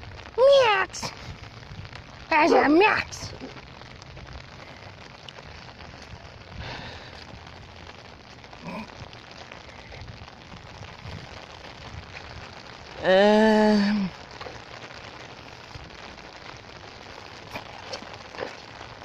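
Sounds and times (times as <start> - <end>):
rain falling: 0.0 - 19.0
rain patter on umbrella: 0.0 - 19.0.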